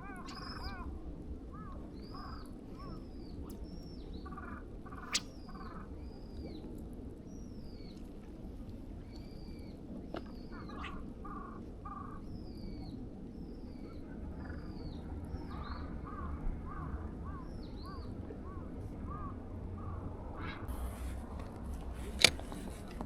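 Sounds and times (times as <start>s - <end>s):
lower short bird calls: 0.0s - 0.9s, 9.2s - 12.9s
steady low background rumble: 0.0s - 23.0s.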